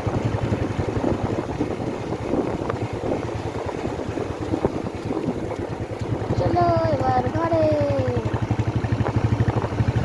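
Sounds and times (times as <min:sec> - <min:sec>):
motorcycle rumble: 0:00.0 - 0:10.0
wind buffeting microphone: 0:00.0 - 0:10.0.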